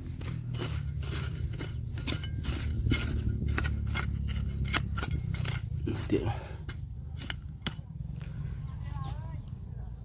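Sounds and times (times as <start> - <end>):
metal tool scraping gravel: 0.0 - 7.9
low rumble: 0.0 - 10.0.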